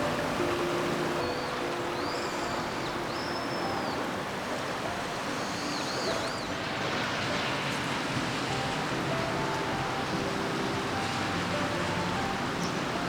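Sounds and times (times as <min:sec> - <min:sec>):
flowing river water: 0:00.0 - 0:13.0
rain: 0:00.0 - 0:13.0
high whistled bird calls: 0:01.2 - 0:04.1, 0:05.3 - 0:06.6.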